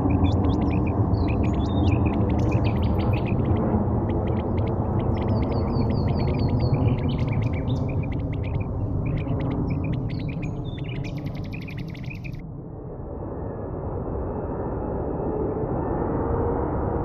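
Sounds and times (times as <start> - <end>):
small birds chirping: 0.0 - 12.4
steady low rumble: 0.0 - 17.0.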